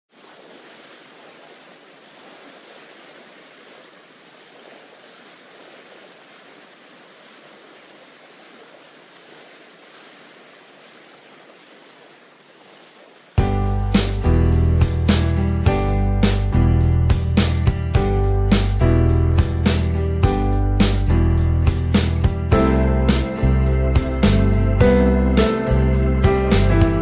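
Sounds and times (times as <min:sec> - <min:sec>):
steady wash of sea water: 0:00.1 - 0:13.4.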